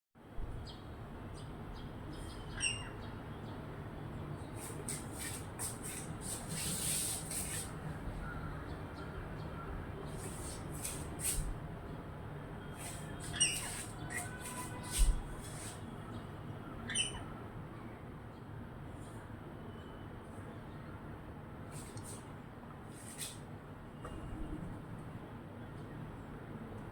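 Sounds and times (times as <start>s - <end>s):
parrot squawking: 2.5s - 3.0s, 13.2s - 14.4s.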